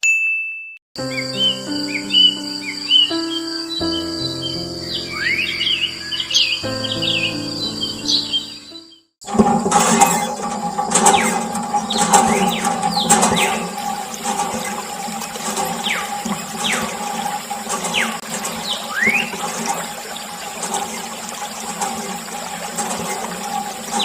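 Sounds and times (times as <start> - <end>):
water running and splashing: 9.2 - 24.0
steady hum: 9.3 - 24.0.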